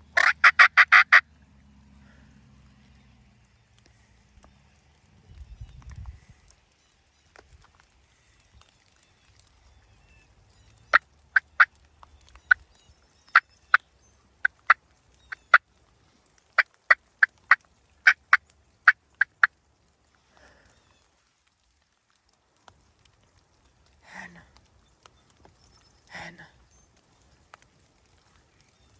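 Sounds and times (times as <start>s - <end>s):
wild turkey clucking: 0.0s - 1.3s, 10.9s - 15.7s, 16.6s - 19.5s.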